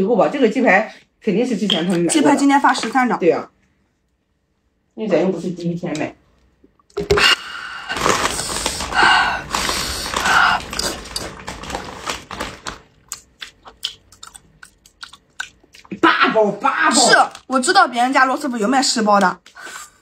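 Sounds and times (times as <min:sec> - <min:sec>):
close biting and chewing: 0:07.9 - 0:16.0.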